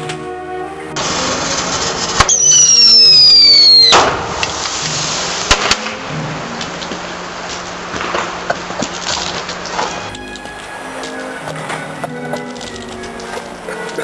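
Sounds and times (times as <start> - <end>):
firework whistle falling in pitch: 1.0 - 4.3
firework bang: 1.0 - 10.0
firework sharp crack: 1.0 - 10.1.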